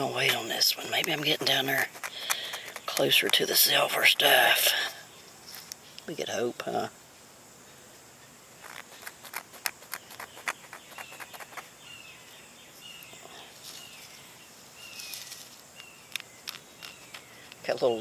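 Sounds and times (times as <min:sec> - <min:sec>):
high insect drone: 0:00.0 - 0:18.0
sharp clicks and scrapes: 0:00.2 - 0:04.4, 0:08.6 - 0:11.7, 0:15.6 - 0:17.7
bird chirping: 0:07.6 - 0:18.0.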